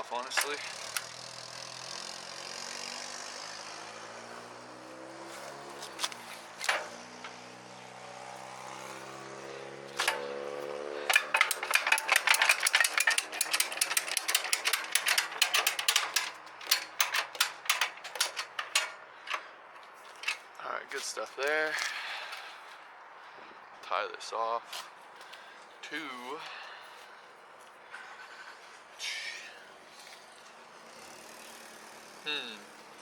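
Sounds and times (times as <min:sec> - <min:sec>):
engine hum: 0:00.0 - 0:20.6, 0:30.3 - 0:33.0
rapid irregular clicking: 0:10.0 - 0:10.4, 0:11.0 - 0:20.5.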